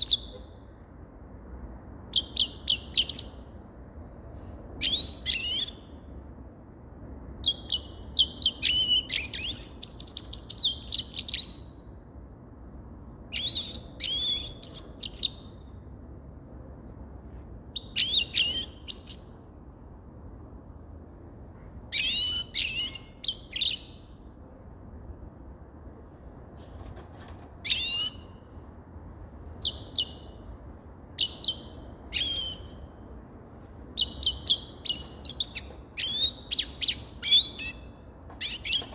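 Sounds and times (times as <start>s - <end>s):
finch twittering song: 2.1s - 4.2s, 4.8s - 5.9s, 7.4s - 11.8s, 13.3s - 15.7s, 17.8s - 19.4s, 21.9s - 24.2s, 26.6s - 28.5s, 29.5s - 30.5s, 31.2s - 33.0s, 33.9s - 38.9s
bird single calls: 26.6s - 28.4s, 31.2s - 32.9s, 34.0s - 38.9s.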